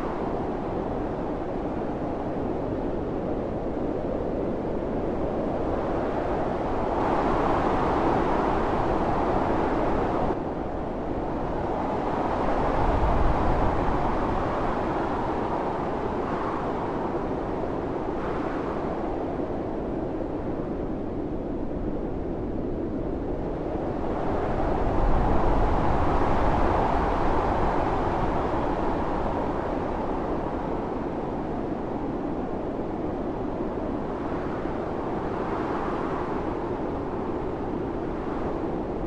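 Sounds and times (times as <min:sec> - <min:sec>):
blizzard wind blowing hard: 0:00.0 - 0:39.0.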